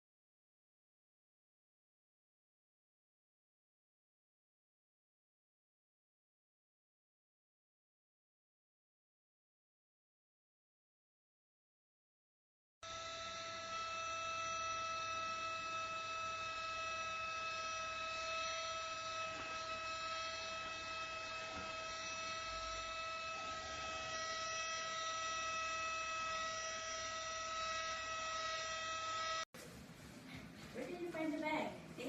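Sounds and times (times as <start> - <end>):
stick vacuum cleaner running: 12.8 - 29.4.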